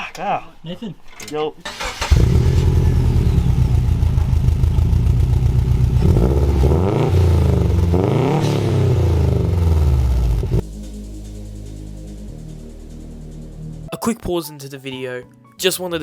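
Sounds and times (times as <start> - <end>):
car engine idling and revving: 1.7 - 13.9.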